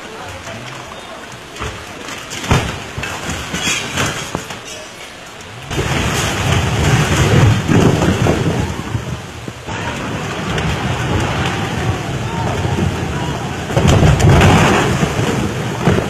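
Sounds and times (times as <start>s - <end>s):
heavy rain pouring: 0.0s - 16.0s
low rumbling roar: 5.4s - 16.0s.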